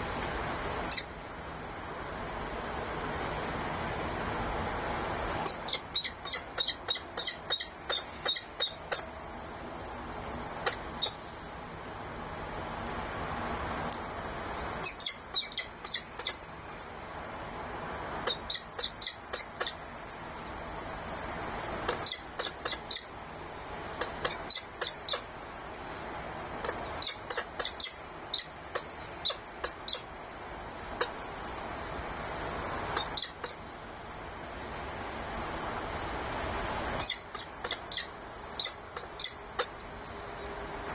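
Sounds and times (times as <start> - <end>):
steady background hiss: 0.0 - 40.9
high-pitched bird chirps: 0.9 - 1.1, 5.4 - 9.1, 10.6 - 11.2, 14.8 - 16.4, 18.2 - 20.5, 21.9 - 23.1, 24.0 - 25.3, 26.6 - 30.1, 32.9 - 33.6, 37.0 - 40.2.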